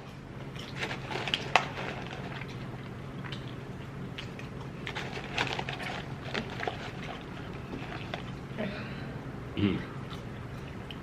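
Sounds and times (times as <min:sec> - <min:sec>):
chewing crunchy food: 0:00.0 - 0:08.6
steady low hum: 0:00.0 - 0:11.0.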